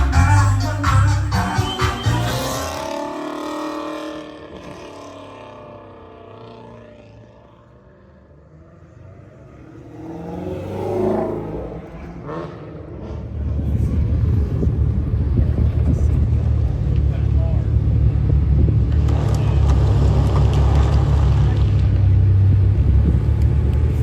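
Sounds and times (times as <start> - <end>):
music track: 0.0 - 3.0
car engine revving: 0.0 - 24.0
loud low engine rumble: 0.0 - 24.0.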